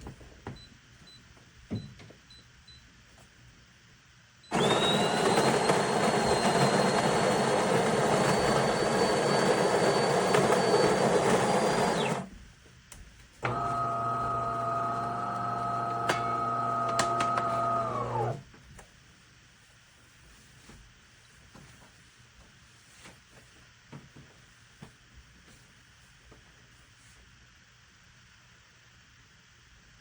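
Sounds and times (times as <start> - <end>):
coffee grinder whining: 4.5 - 12.3, 13.5 - 18.4
motor humming: 4.5 - 12.3, 13.4 - 18.4.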